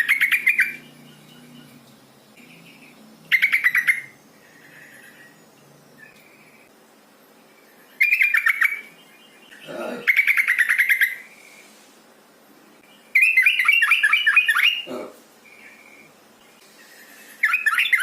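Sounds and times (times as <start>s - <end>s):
bird chattering notes: 2.4s - 5.4s.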